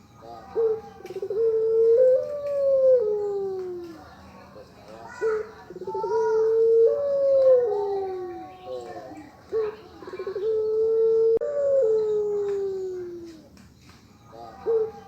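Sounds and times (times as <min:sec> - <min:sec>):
dove cooing: 0:00.0 - 0:04.1, 0:05.1 - 0:13.6, 0:14.3 - 0:15.0.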